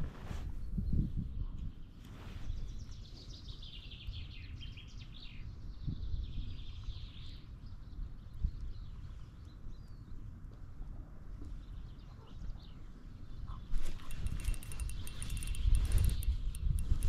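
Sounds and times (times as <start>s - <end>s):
bird chirps and trills: 12.0s - 17.0s.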